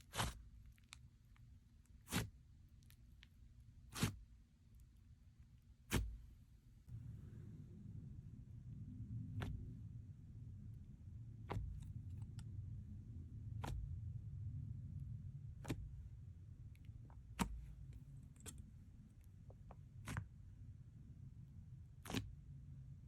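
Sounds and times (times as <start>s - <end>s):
slime crackles: 3.9s - 4.2s
low rumble: 6.2s - 23.0s.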